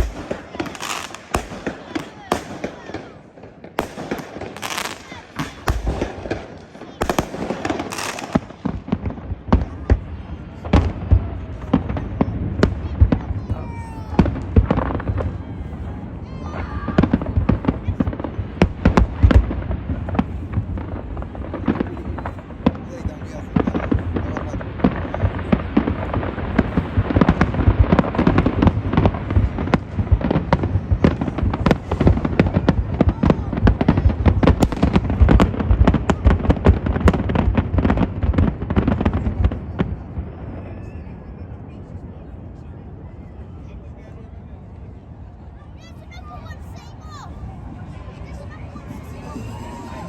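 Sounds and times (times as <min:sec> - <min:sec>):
fireworks bangs and booms: 0:00.0 - 0:50.0.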